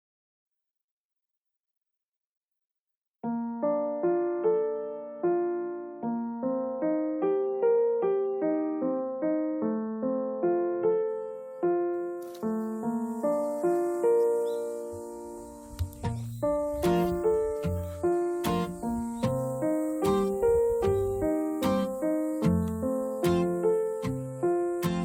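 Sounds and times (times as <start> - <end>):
gentle piano melody: 3.2 - 25.0.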